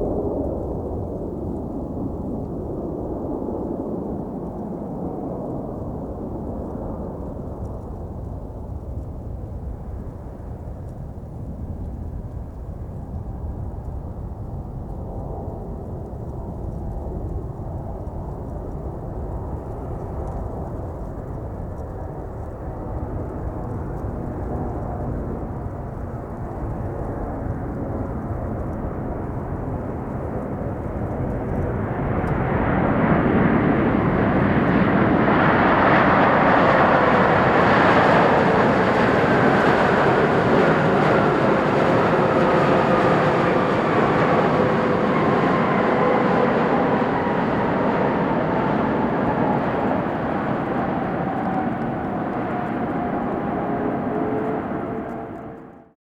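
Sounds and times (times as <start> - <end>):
jet engine whine: 0.0 - 56.0
jet rumble: 15.4 - 56.0.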